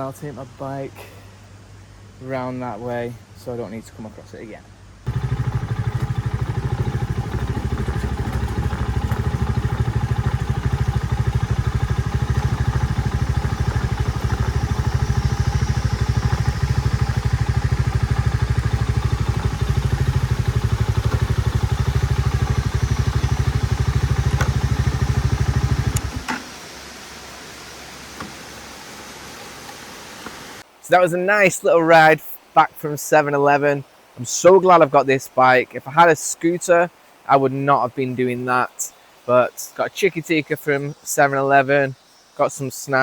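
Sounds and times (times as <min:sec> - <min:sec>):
motorcycle engine running: 0:05.1 - 0:26.3.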